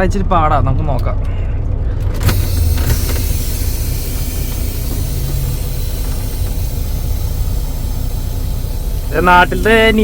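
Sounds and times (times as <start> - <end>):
diesel truck engine rumbling: 0.0 - 10.0
steady hiss: 2.3 - 10.0.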